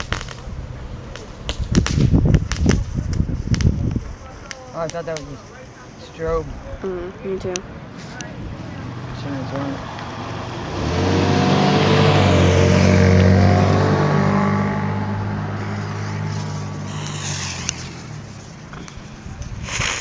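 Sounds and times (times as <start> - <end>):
car driving past: 7.7 - 18.6
tyre hiss: 15.5 - 20.0.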